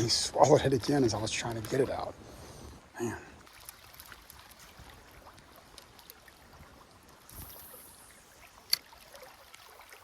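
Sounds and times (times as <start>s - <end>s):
creek water trickling: 0.0s - 10.0s
faint clicks: 5.3s - 6.2s.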